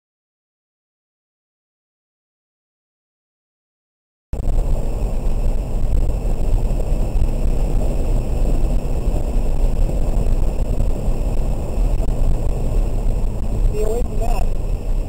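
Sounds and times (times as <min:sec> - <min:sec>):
low rumble inside car cabin: 0:04.4 - 0:15.0
tyre and road noise: 0:04.4 - 0:15.0.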